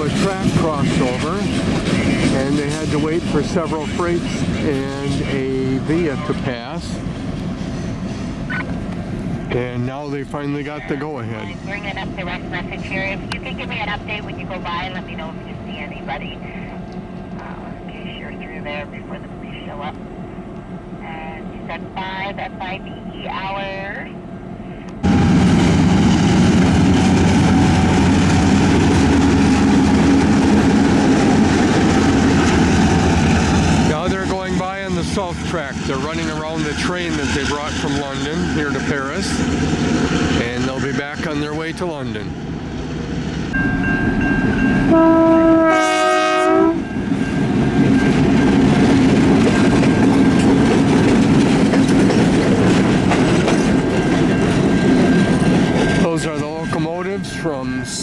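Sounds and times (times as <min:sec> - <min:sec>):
diesel locomotive engines droning: 0:00.0 - 0:58.0
locomotive horn blast: 0:43.6 - 0:47.5.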